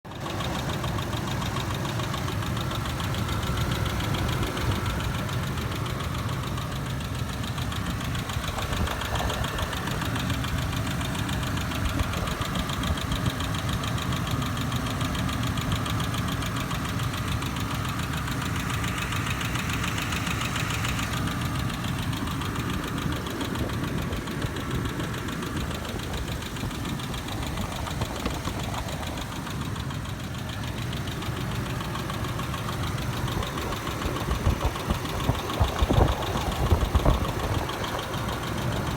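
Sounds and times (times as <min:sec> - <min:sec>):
engine running with fast knocking: 0:00.1 - 0:38.9.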